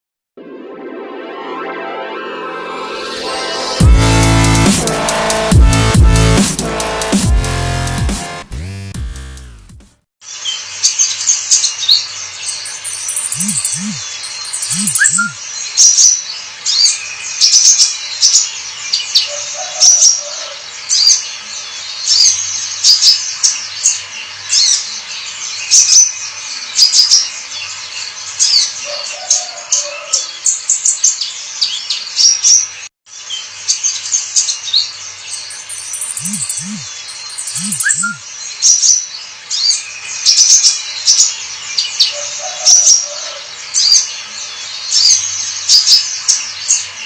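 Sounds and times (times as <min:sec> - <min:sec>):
sunbird singing chirps and trills: 0:10.2 - 0:47.0.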